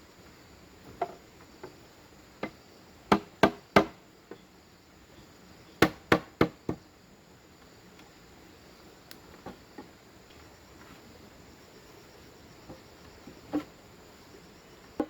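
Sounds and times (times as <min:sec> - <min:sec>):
tool striking bamboo: 0:05.8 - 0:06.8.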